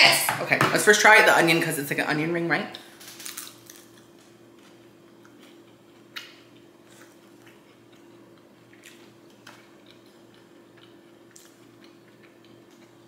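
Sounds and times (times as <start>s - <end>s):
person chewing with mouth clicks: 5.2s - 13.0s.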